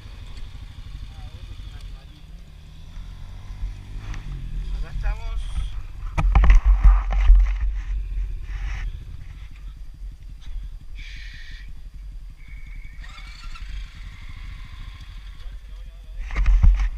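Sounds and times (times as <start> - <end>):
atv engine idling: 0.0 - 16.9
loud rumbling and knocks: 5.6 - 8.7.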